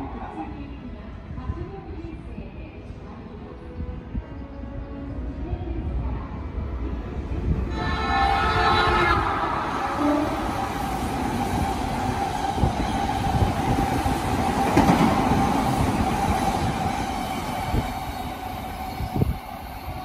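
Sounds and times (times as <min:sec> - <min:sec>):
electric train rushing past: 0:06.7 - 0:20.0.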